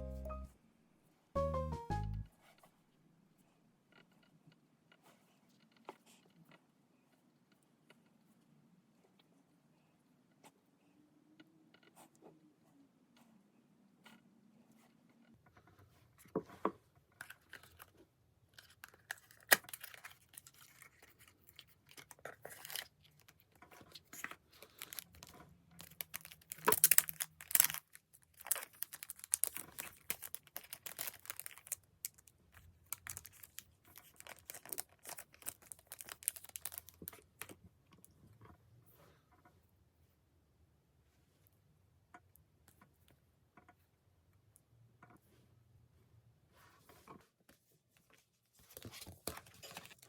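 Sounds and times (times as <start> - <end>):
packaging tearing and crinkling: 18.6 - 23.4, 24.6 - 32.3, 32.9 - 37.5.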